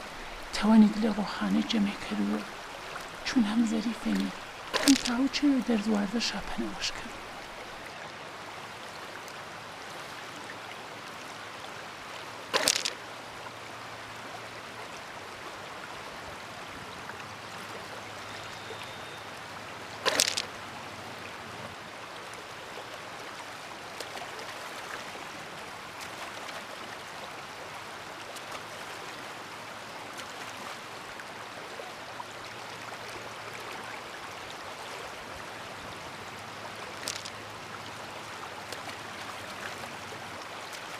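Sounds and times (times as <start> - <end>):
stream rushing: 0.0 - 40.9.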